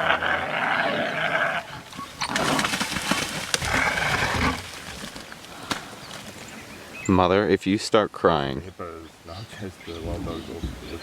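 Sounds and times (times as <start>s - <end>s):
harsh wild animal calls: 0.0s - 2.9s, 3.5s - 4.8s.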